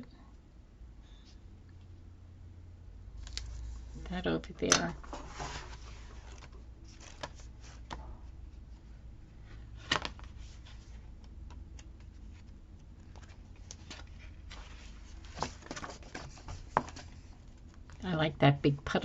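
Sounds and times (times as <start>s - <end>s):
steady low hum: 0.0s - 19.0s
paper pages rustling: 5.0s - 8.8s, 9.4s - 18.0s.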